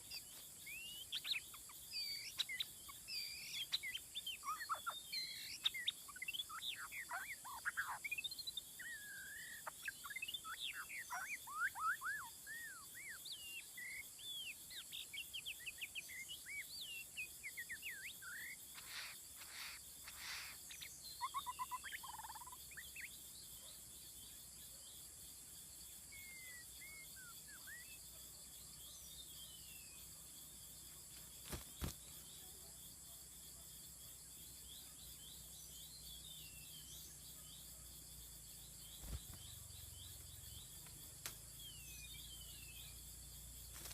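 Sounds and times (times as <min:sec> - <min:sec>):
bird singing whistled chirps: 0:00.0 - 0:23.2, 0:26.1 - 0:28.0, 0:41.5 - 0:43.0
high insect drone: 0:08.8 - 0:43.9.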